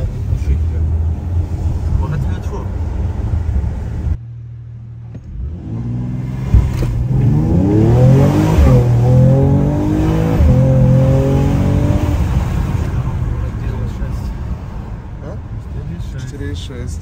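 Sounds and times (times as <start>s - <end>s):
car engine accelerating hard: 5.1s - 14.3s
sharp thump: 6.4s - 7.3s.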